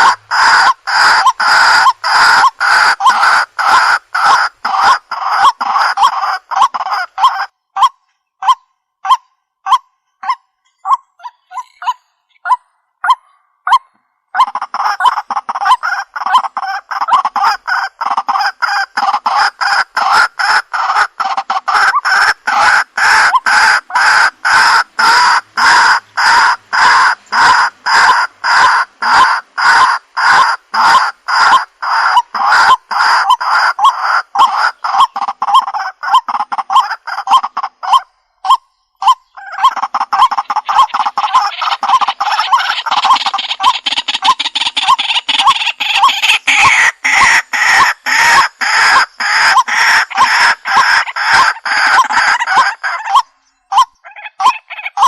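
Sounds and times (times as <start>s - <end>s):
waterhen calling repeated notes: 0.0s - 55.0s.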